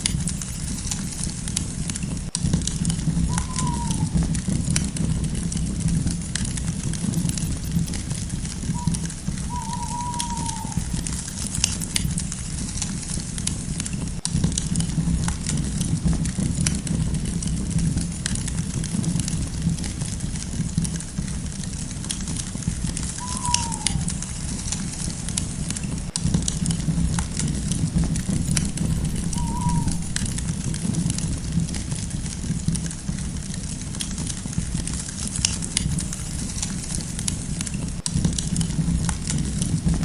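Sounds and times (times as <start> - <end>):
low rumble of burning: 0.0 - 10.0, 12.0 - 40.0
short falling whistle: 3.3 - 4.2, 8.8 - 12.1, 23.2 - 24.3, 28.4 - 30.3.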